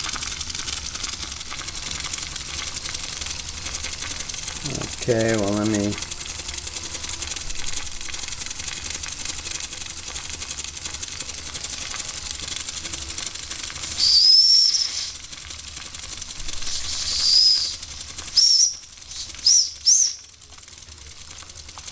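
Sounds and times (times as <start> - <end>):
steam engine hissing: 0.0 - 21.9
high whistling tones: 13.8 - 15.2, 16.7 - 20.3.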